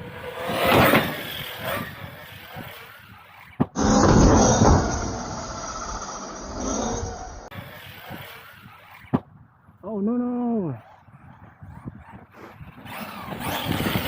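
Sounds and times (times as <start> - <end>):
truck rumbling on the ground: 0.0 - 9.3
electric rc truck whoosh: 0.0 - 14.0.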